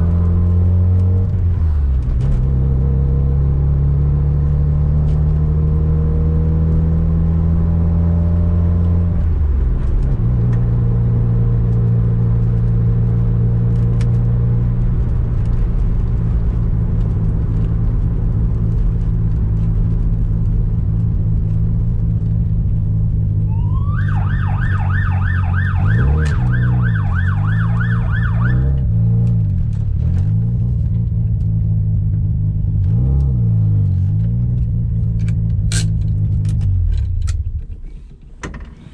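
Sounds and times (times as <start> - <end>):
police siren yelping: 23.5 - 28.9.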